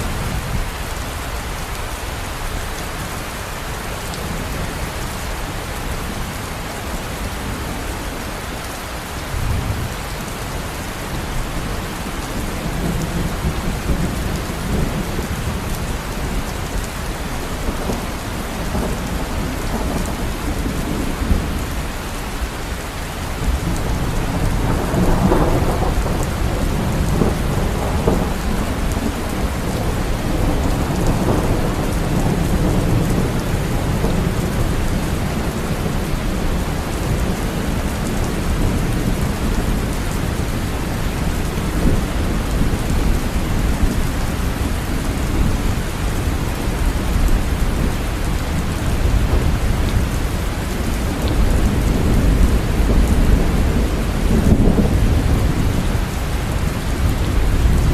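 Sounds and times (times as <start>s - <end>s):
steady rain: 0.0s - 57.9s
thunder rumbling: 11.0s - 22.2s, 23.4s - 57.9s.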